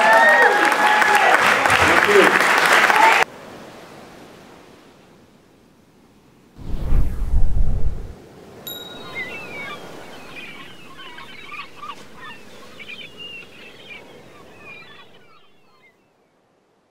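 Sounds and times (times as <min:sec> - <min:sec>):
thin high tone: 0:08.7 - 0:10.8
birds chirping and squawking: 0:09.0 - 0:16.0.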